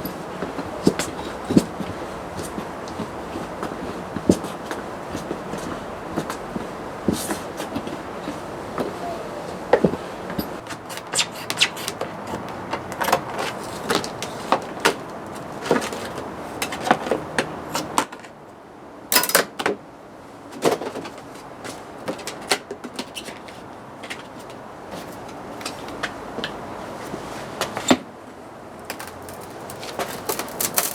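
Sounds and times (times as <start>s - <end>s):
tools and metal parts clicking: 19.1s - 19.4s, 28.8s - 30.9s.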